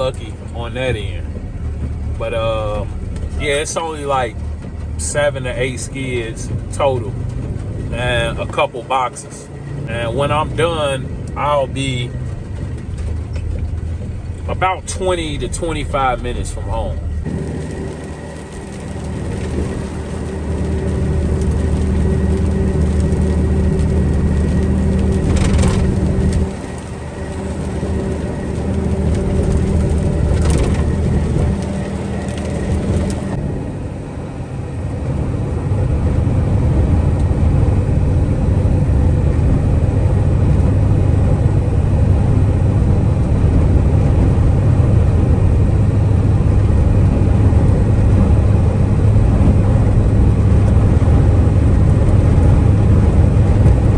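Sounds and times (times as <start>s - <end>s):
truck engine droning: 0.0s - 53.9s.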